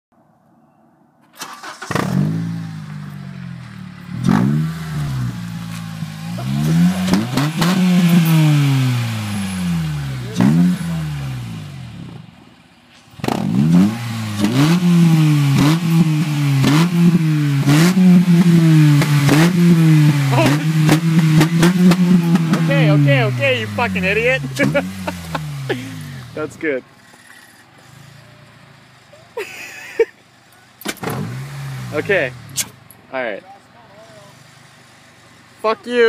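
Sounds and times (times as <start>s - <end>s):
engine throttle blips: 1.4s - 29.1s
car engine revving: 1.4s - 29.2s, 30.8s - 36.0s.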